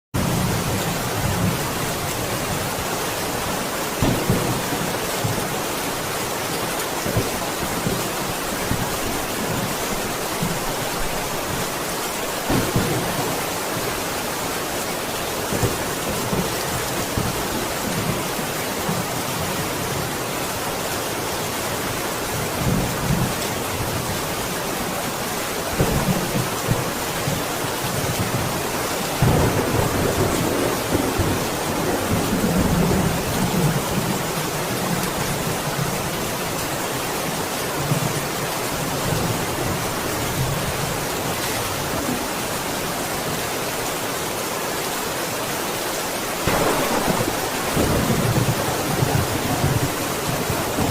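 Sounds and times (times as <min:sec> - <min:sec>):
heavy rain: 0:00.1 - 0:50.9
thunder rolling: 0:12.4 - 0:14.2, 0:46.4 - 0:50.9.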